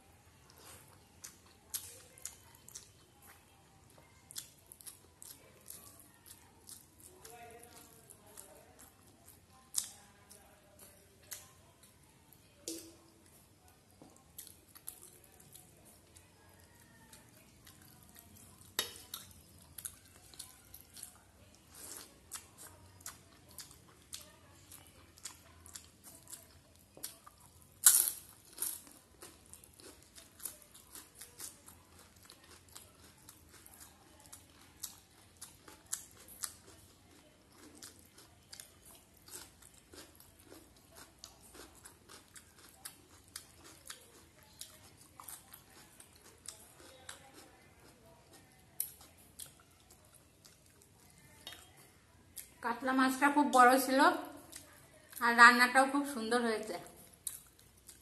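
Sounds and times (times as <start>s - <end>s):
person chewing food: 0.3s - 52.6s, 54.4s - 55.2s, 57.0s - 58.0s.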